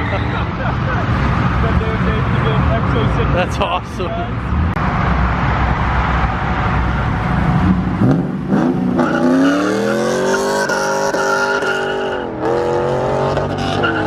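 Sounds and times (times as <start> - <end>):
car engine revving: 4.3 - 14.0.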